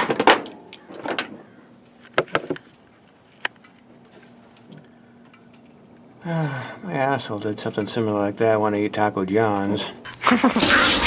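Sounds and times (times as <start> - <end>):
metal tools clicking and clinking: 0.0 - 1.4
faint steady hum: 0.0 - 11.0.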